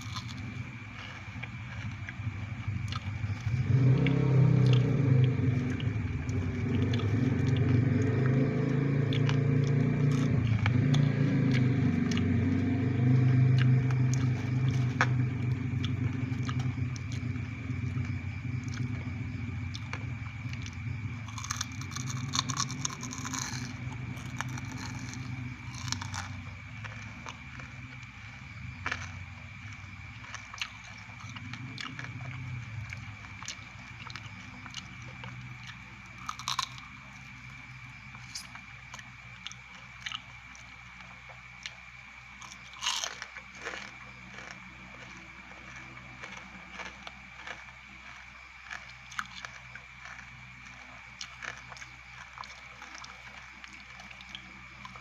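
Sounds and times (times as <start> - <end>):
low rumble: 0.0 - 39.5
chewing and crunching: 0.0 - 55.0.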